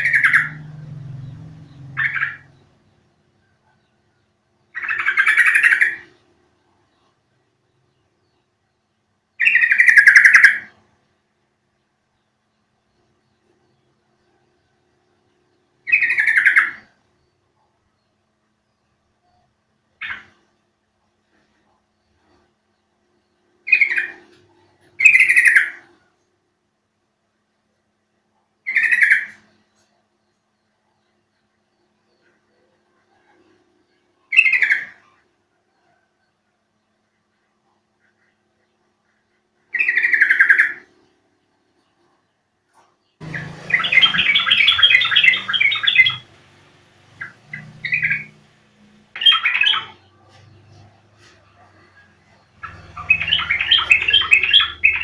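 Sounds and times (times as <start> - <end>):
bulbul calls: 0.0 - 3.0, 4.7 - 6.3, 9.4 - 10.8, 15.8 - 17.0, 23.6 - 26.0, 28.6 - 29.9, 34.2 - 35.2, 39.0 - 41.1, 43.2 - 46.5, 47.1 - 55.0
bird chattering song: 0.0 - 20.7, 21.3 - 26.2, 28.6 - 55.0.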